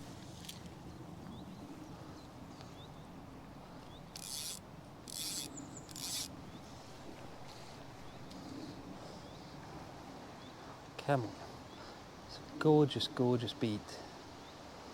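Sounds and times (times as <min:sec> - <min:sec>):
short rasping rubs: 0:04.2 - 0:06.3.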